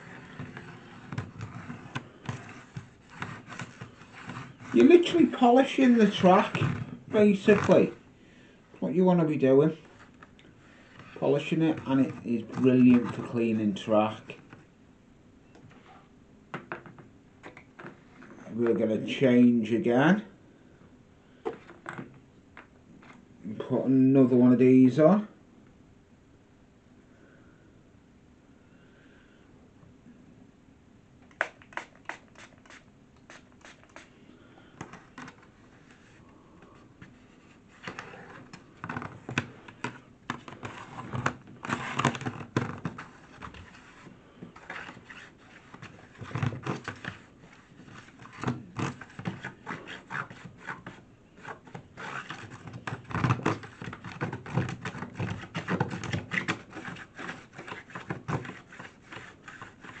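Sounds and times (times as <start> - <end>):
cloth scraping and rustling: 0.0 - 8.0.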